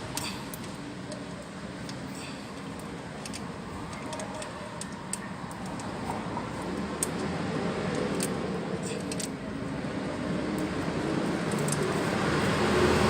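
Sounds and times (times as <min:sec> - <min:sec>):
traffic rumble: 0:00.0 - 0:13.0
ratchet wrench clicking: 0:07.9 - 0:09.4.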